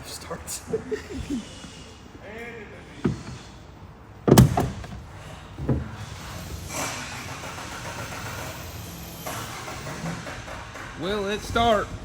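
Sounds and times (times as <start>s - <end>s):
loud clunk: 4.3s - 6.1s.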